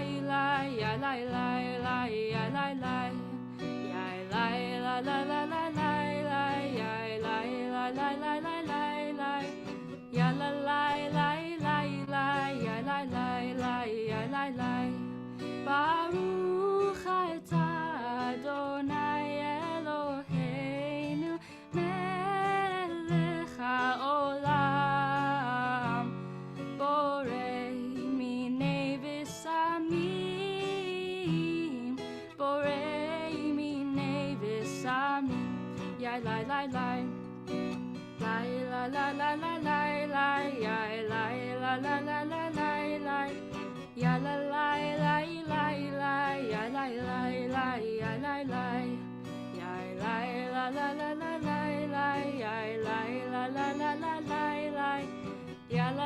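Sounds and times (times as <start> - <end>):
person singing: 0.0 - 37.2, 38.0 - 56.0
strummed acoustic guitar: 0.0 - 56.0.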